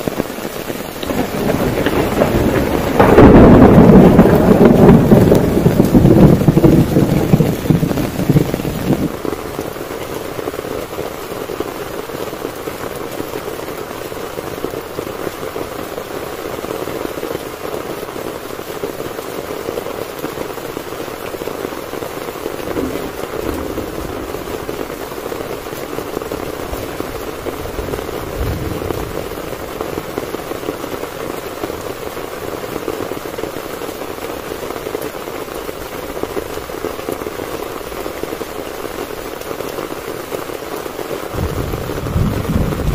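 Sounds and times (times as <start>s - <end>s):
heavy rain on a tent: 0.0s - 42.9s
distant thunder rumble: 0.1s - 11.3s, 21.8s - 39.4s, 40.9s - 42.9s
loud thunderclap: 0.8s - 10.0s, 22.2s - 30.8s, 41.2s - 42.9s.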